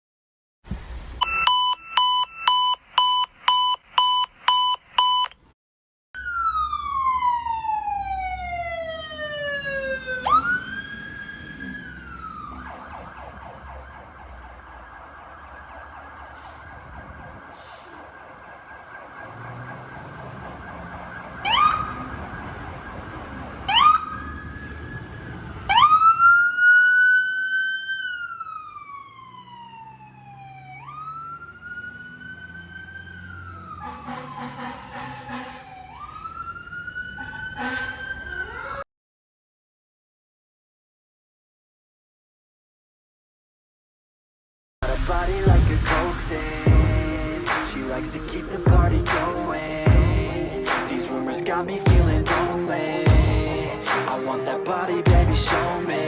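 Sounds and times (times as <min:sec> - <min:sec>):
siren wailing: 0:01.2 - 0:02.9, 0:06.2 - 0:38.8
siren yelping: 0:01.2 - 0:03.5, 0:06.2 - 0:38.8
short siren blasts: 0:01.2 - 0:05.2, 0:06.2 - 0:38.8.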